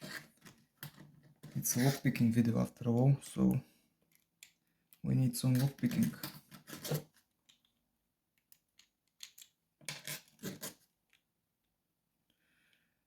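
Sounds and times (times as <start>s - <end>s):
metal tools clinking: 5.5s - 7.0s.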